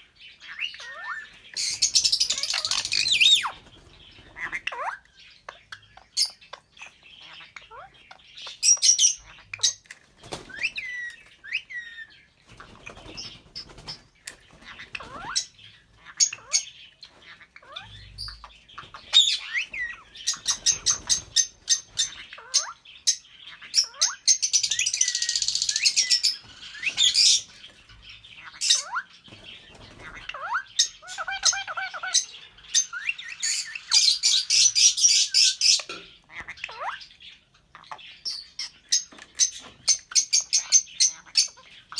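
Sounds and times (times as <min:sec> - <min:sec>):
lovebirds chirping and squawking: 0:00.0 - 0:41.9.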